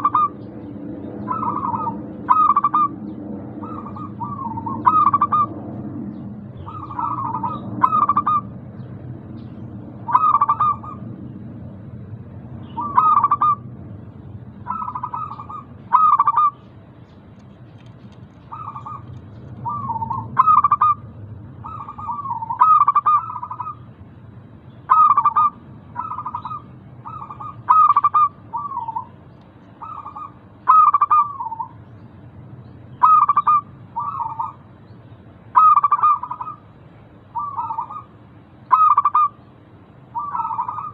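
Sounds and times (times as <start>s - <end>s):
doves cooing: 0.0s - 8.6s, 9.9s - 11.2s, 12.7s - 13.7s, 14.6s - 16.6s, 17.7s - 23.9s, 24.9s - 31.9s, 32.9s - 34.7s, 35.5s - 36.7s, 37.3s - 39.4s, 40.1s - 40.9s
steady low hum: 0.0s - 40.9s.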